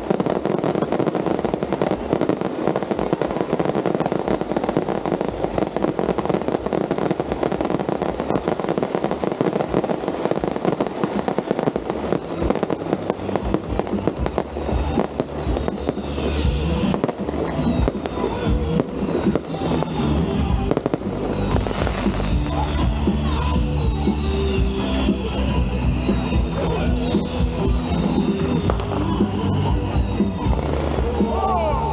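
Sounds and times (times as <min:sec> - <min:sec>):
fireworks and firecrackers crackling: 0:00.0 - 0:31.9
loud music with a beat: 0:08.8 - 0:31.9.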